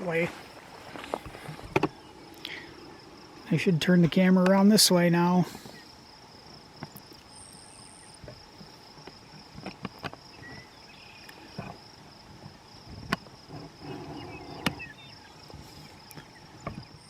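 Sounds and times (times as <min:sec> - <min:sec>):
crickets chirping: 0:00.0 - 0:17.0
faint bird chirps: 0:07.1 - 0:08.3, 0:10.3 - 0:11.6, 0:13.8 - 0:17.0.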